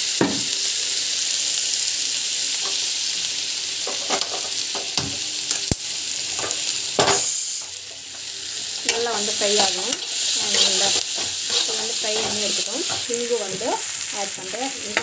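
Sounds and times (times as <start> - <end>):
onions sizzling in hot oil: 0.0 - 15.0
metal spatula scraping pan: 8.9 - 13.2.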